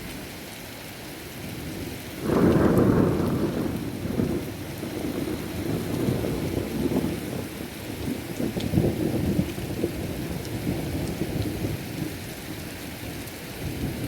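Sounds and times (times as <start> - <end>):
heavy rain falling: 0.0 - 14.0
thunder rumbling: 1.6 - 11.8.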